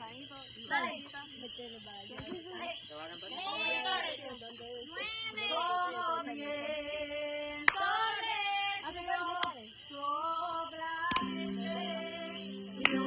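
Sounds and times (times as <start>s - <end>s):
sharp clicks: 11.1s - 11.4s.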